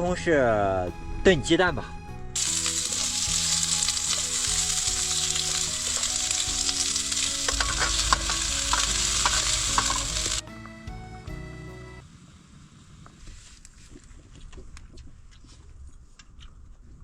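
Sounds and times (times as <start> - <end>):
background music: 0.0 - 12.0
food sizzling in hot oil: 2.4 - 10.4
spatula scraping and tapping: 5.3 - 10.4.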